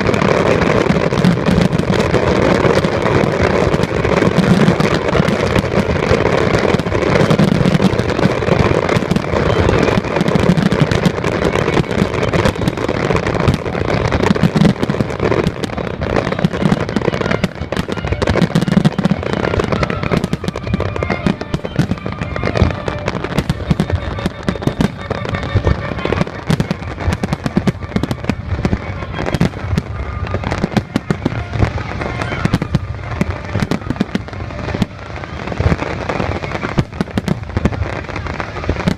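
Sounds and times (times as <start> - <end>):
fireworks bursting and crackling: 0.0 - 38.9
music playing: 14.8 - 38.7.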